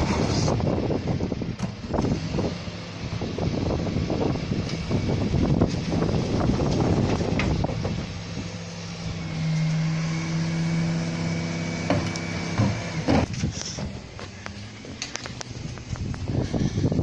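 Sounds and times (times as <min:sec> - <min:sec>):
truck droning hum: 0:00.0 - 0:17.0
bins clattering and knocking: 0:11.8 - 0:14.1.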